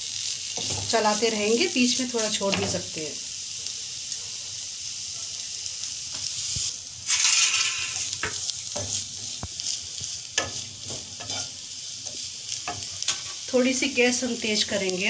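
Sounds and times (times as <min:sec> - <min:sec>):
onion sizzling in oil: 0:00.0 - 0:15.0
wooden spatula scraping a pan: 0:07.1 - 0:13.5.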